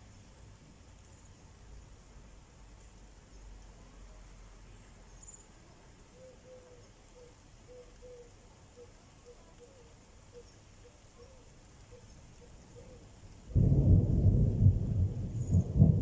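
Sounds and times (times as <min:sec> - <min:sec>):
faint low rumble: 0:13.6 - 0:16.0.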